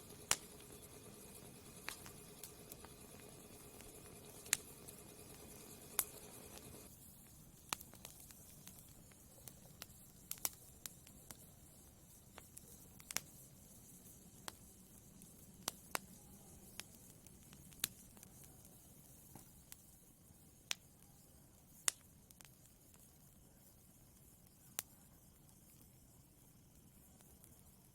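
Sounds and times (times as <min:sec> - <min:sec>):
wood fire crackling: 0:00.0 - 0:19.8.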